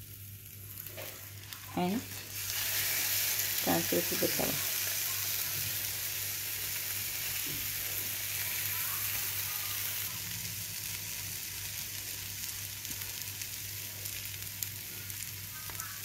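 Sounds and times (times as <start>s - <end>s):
bread sizzling on a griddle: 0.0s - 16.0s.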